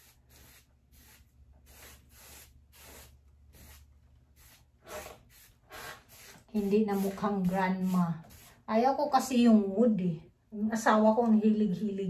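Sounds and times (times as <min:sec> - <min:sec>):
paintbrush swishing on wood: 0:00.0 - 0:08.7.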